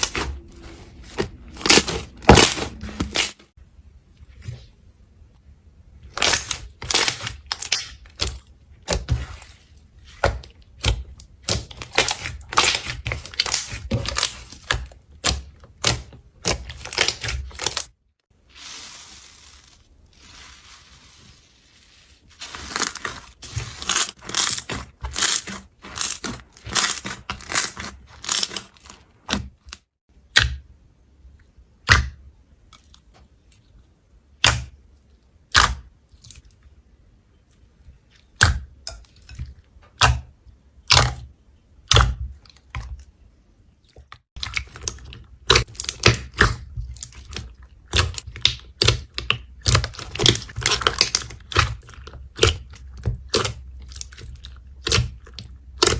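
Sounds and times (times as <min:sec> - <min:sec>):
slime crackling and popping: 0:10.8 - 0:17.9, 0:22.4 - 0:29.8, 0:44.4 - 0:55.9.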